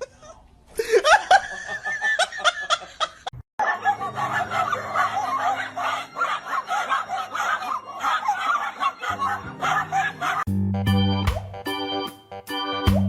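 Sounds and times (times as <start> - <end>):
laughter: 0.0 - 10.5
rapid chattering voices: 3.6 - 10.4
background music: 3.7 - 13.0
organ music: 3.8 - 13.0.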